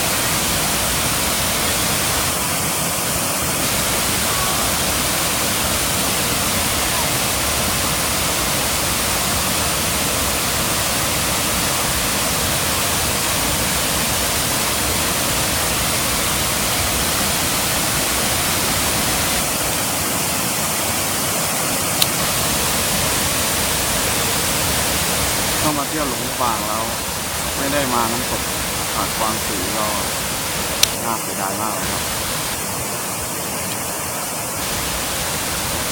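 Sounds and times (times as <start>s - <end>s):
waterfall rushing: 0.0s - 35.9s
sharp click: 30.8s - 31.0s.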